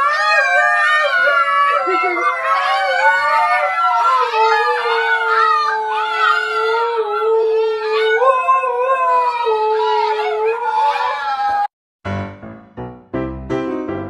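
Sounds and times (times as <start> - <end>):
dogs howling: 0.0 - 11.7
dog yips: 1.2 - 6.8, 7.4 - 11.7.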